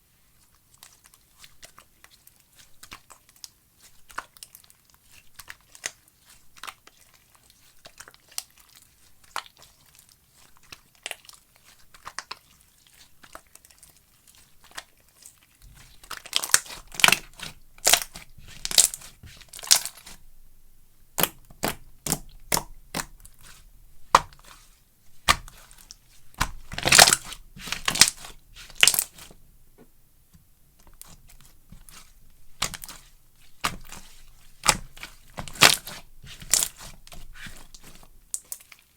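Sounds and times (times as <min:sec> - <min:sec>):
slime crackling and popping: 0:16.0 - 0:20.2, 0:21.2 - 0:29.3, 0:30.8 - 0:38.8.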